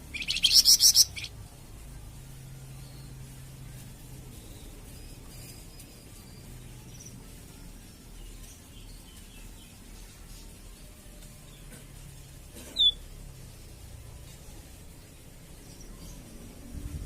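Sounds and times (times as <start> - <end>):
bird chirping: 0.0 - 1.4, 12.6 - 13.1
low steady hum: 0.0 - 17.0.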